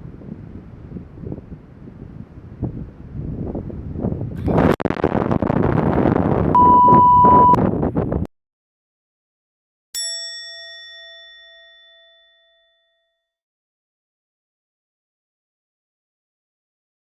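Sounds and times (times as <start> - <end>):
wind on microphone: 0.0 - 8.3
steady beep: 6.6 - 7.6
bell-like ding: 10.0 - 13.4.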